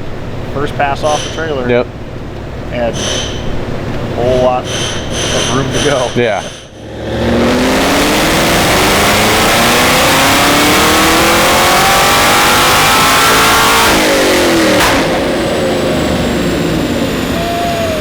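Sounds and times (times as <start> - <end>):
sharp click: 3.0 - 3.6
car engine revving at full throttle: 6.7 - 18.0.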